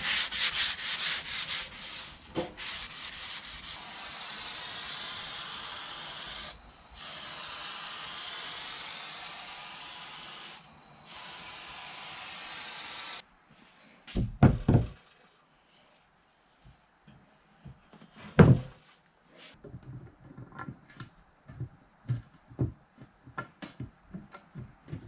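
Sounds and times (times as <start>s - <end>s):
high spraying hiss: 0.0s - 13.2s
dull thumps: 14.2s - 15.0s.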